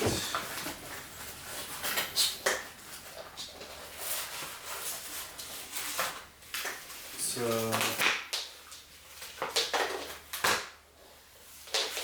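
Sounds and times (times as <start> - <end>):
plastic vacuum handling noise: 0.0 - 0.8.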